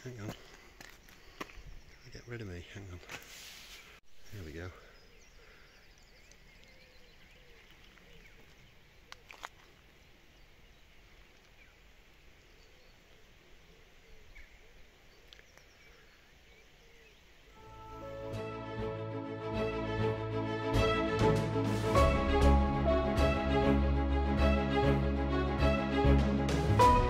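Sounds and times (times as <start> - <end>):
birds chirping and trilling: 0.1 - 3.0, 3.6 - 9.2.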